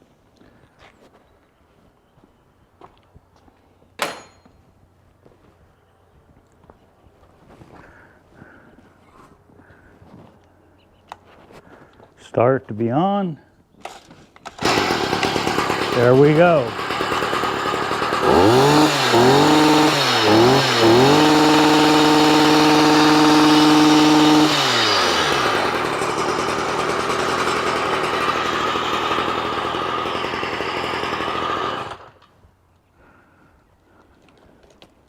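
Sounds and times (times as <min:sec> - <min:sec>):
tiller two-stroke engine revving: 0:14.6 - 0:32.2.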